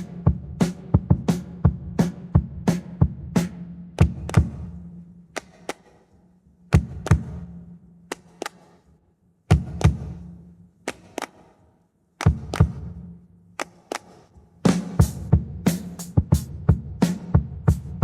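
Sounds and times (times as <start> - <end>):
handclaps: 4.0 - 8.9, 9.5 - 14.5.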